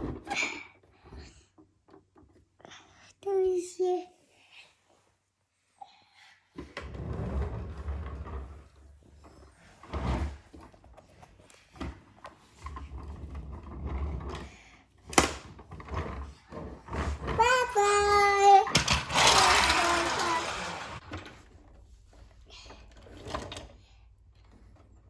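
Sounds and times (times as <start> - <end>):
plastic toys scraping and knocking: 6.6 - 25.0.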